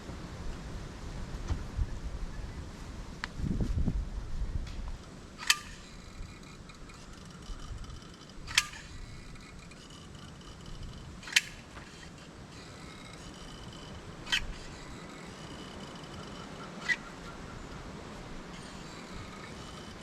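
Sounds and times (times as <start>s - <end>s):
sharp clicks with faint ring: 5.4s - 14.7s.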